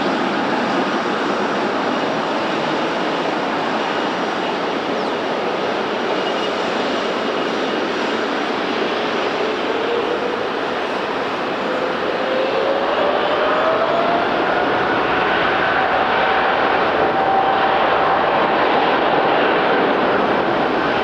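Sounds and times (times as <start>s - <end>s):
jet engines rushing: 0.0s - 21.0s.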